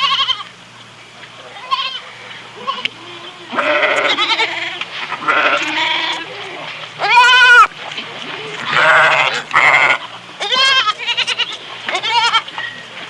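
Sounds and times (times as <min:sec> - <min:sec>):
animal wavering cry: 0:08.7 - 0:11.3.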